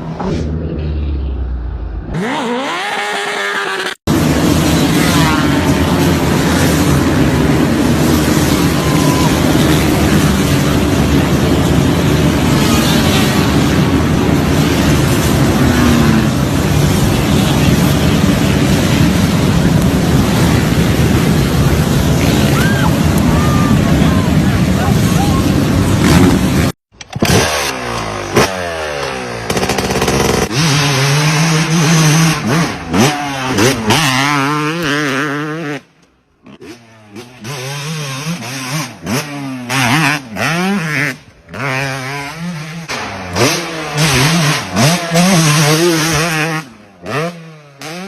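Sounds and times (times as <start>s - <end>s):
motorcycle and quad engines revving: 0.0s - 48.0s.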